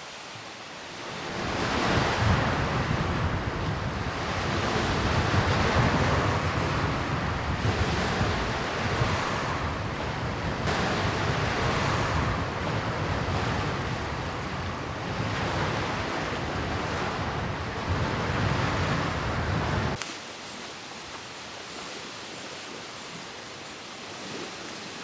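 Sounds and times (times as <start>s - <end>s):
waves washing against shore: 0.0s - 25.0s
wind rumbling on microphone: 1.2s - 20.0s.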